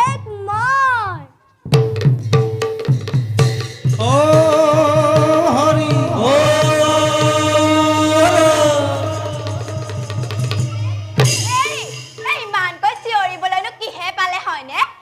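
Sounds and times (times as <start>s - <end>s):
hand drum beat: 1.7s - 12.7s
person singing long note: 4.0s - 10.7s.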